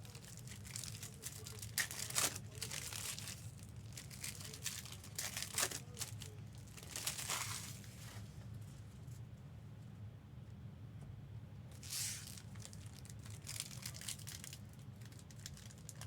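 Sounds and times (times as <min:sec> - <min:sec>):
card pack wrappers crinkling: 0:00.0 - 0:08.2, 0:11.8 - 0:16.0.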